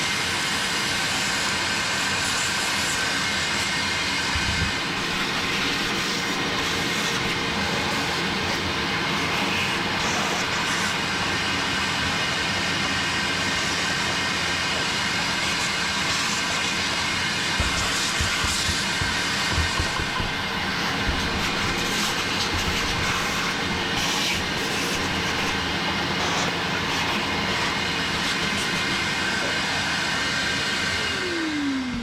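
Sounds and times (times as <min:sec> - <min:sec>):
vacuum cleaner motor whine: 0:00.0 - 0:32.0.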